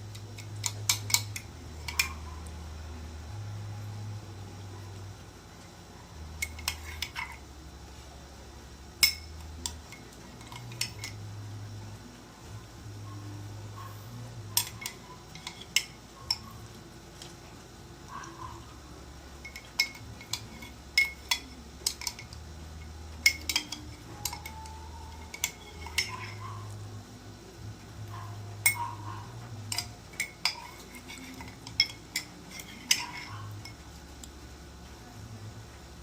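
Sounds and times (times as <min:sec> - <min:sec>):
cutlery clinking against a plate: 0:00.1 - 0:02.4, 0:06.4 - 0:07.4, 0:09.0 - 0:11.2, 0:14.5 - 0:17.4, 0:19.4 - 0:26.5, 0:28.1 - 0:34.3.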